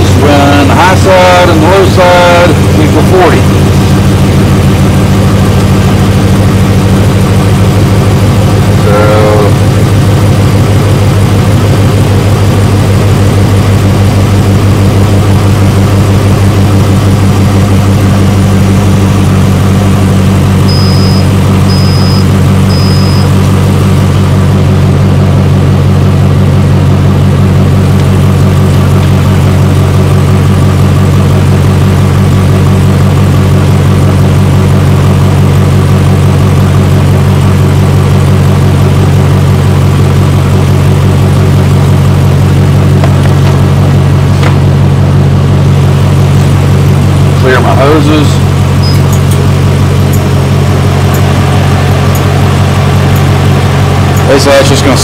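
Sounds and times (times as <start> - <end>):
air conditioning machine running: 0.0 - 55.0
car engine idling: 0.0 - 55.0
short high beeps: 20.6 - 23.3, 48.8 - 49.2.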